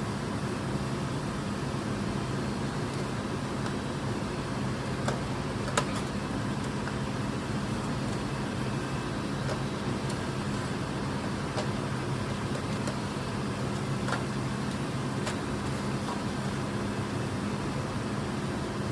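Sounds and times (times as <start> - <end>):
mechanical hum: 0.0 - 18.9.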